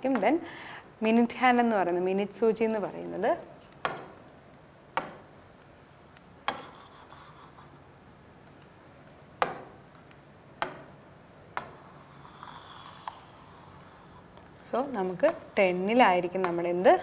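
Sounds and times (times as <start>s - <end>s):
pen rubbing strokes: 11.8s - 14.3s.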